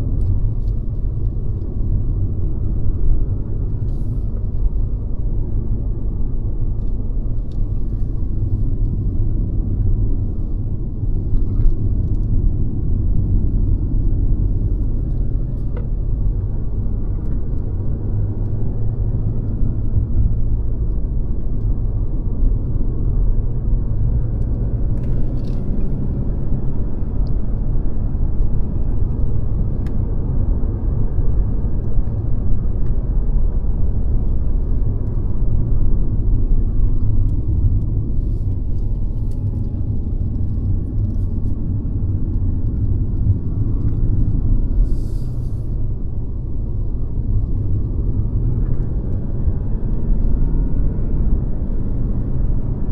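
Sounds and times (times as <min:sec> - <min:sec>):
car engine and road noise: 0:00.0 - 0:52.9.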